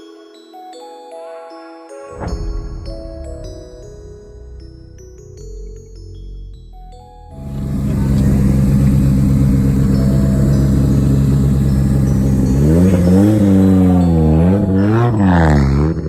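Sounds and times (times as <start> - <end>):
vehicle engine idling and revving: 6.6 - 16.0.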